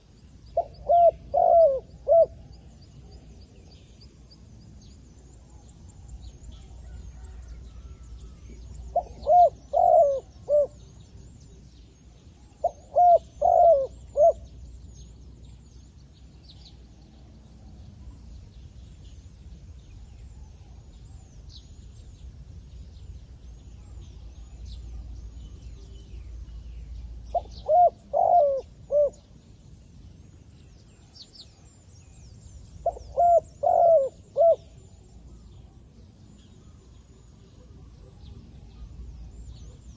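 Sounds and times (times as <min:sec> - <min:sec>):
small birds chirping: 0:00.0 - 0:39.9
dove cooing: 0:00.6 - 0:02.5, 0:08.9 - 0:10.9, 0:12.6 - 0:14.5, 0:27.3 - 0:29.2, 0:32.8 - 0:35.0.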